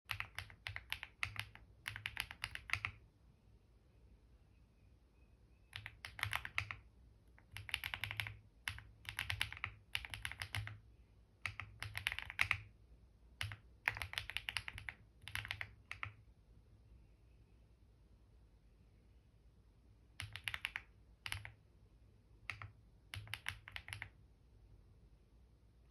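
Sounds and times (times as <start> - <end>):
typing on computer keyboard: 0.1 - 3.0, 5.7 - 10.8, 11.4 - 12.7, 13.4 - 16.2, 20.2 - 21.6, 22.4 - 24.2.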